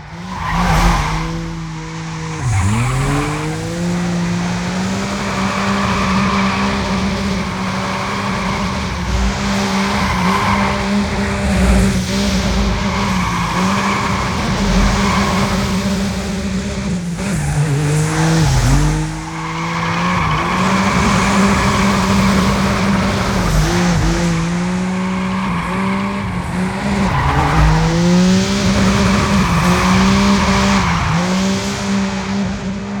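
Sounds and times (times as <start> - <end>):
quadcopter motors buzzing: 8.8 - 19.8.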